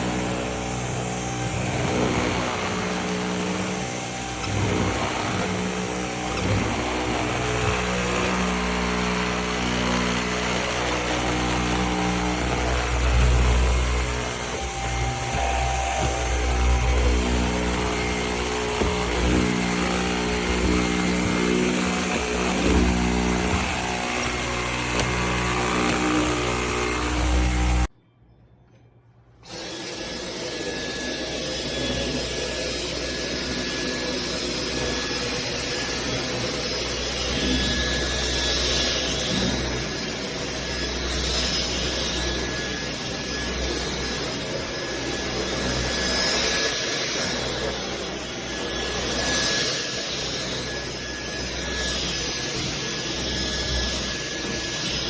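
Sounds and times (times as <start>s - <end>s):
vacuum mop motor humming: 0.0s - 27.9s, 29.4s - 55.0s
thin steady whistle: 29.4s - 55.0s.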